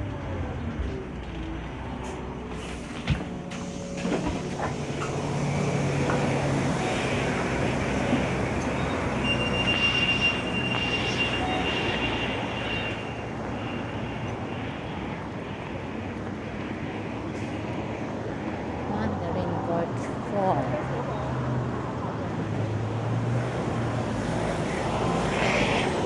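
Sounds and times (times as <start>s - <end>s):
bus engine hum: 0.0s - 26.0s
road rumble: 0.0s - 26.0s.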